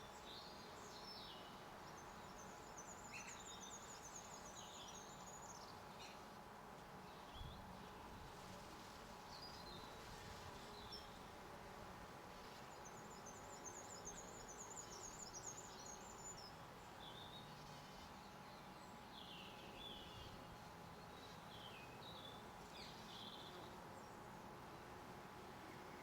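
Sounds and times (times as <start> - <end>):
songbirds twittering: 0.0 - 6.4, 12.5 - 24.3.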